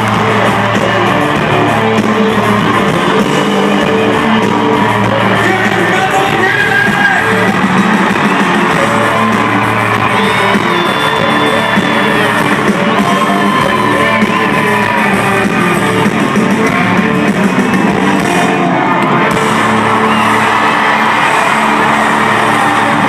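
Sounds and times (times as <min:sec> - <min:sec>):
person singing: 0:00.0 - 0:17.6
crowd yelling: 0:00.0 - 0:23.0
live country rock band: 0:00.0 - 0:23.0.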